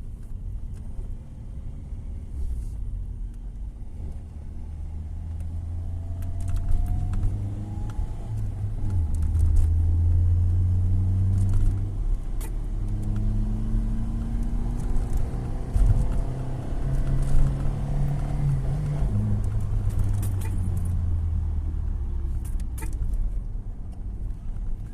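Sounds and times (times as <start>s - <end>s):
car engine revving: 3.9s - 22.9s.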